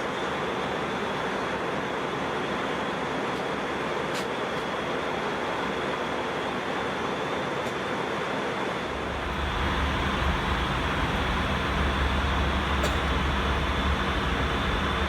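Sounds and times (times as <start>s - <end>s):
airplane cabin noise: 8.9s - 15.0s
deep low rumble: 9.0s - 15.0s.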